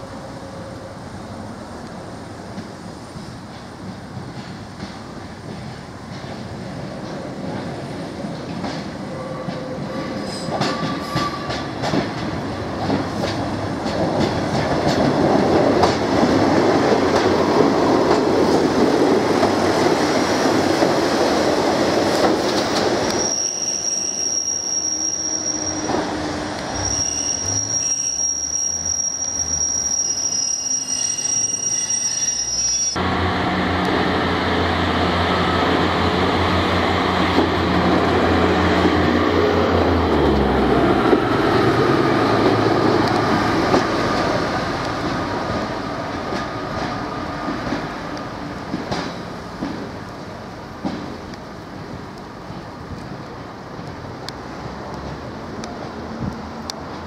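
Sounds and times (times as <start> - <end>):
heavy train rumble: 0.0 - 23.3, 25.2 - 27.8, 32.9 - 57.0
train wheels squealing: 9.1 - 11.7, 22.7 - 33.0.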